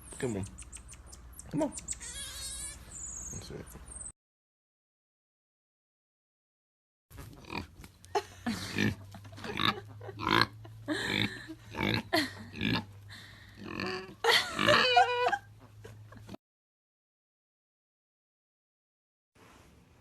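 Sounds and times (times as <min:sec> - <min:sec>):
animal pitched call: 0:01.4 - 0:03.4.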